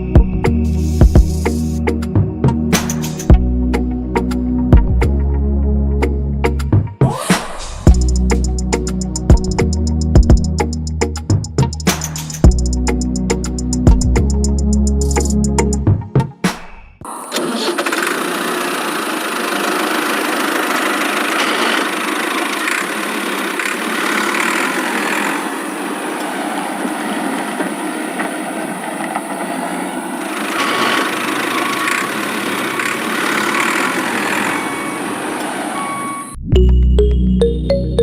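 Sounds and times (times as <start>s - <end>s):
music: 0.0s - 17.0s, 36.4s - 38.0s
small engine running: 7.1s - 10.9s, 17.1s - 36.3s.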